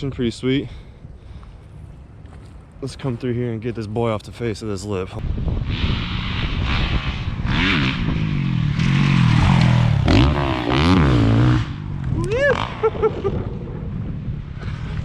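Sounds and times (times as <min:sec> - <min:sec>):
motocross bike revving: 0:05.4 - 0:13.2.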